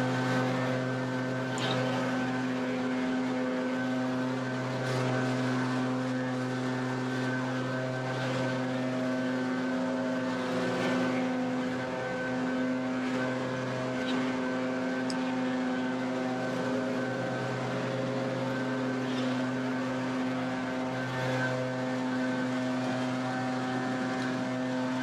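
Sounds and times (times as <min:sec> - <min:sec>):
leaf blower engine drone: 0:00.0 - 0:25.0.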